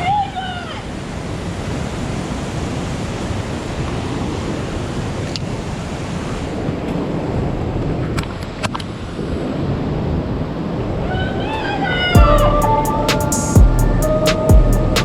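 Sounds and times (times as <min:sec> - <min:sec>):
creek water and waterfall: 0:00.0 - 0:11.1.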